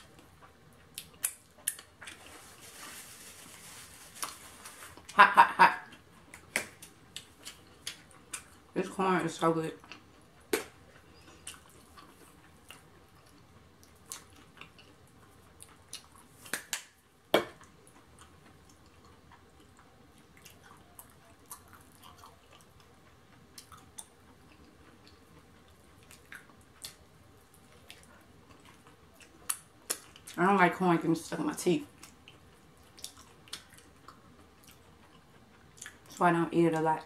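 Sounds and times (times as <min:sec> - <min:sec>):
chewing and mouth smacks: 0:00.1 - 0:02.3, 0:05.9 - 0:08.7, 0:09.8 - 0:16.9, 0:17.6 - 0:30.4, 0:31.9 - 0:36.2.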